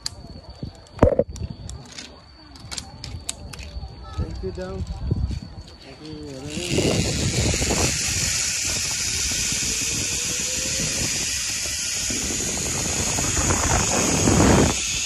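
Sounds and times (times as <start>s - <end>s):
zipline trolley on steel cable: 5.3s - 15.0s.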